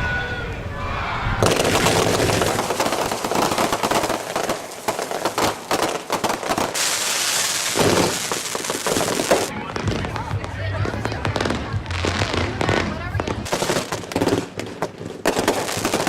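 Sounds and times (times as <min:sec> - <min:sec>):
fireworks hissing: 0:01.4 - 0:10.2, 0:11.0 - 0:16.0
fireworks burst: 0:01.4 - 0:16.0
fireworks crackling pops: 0:01.4 - 0:16.0.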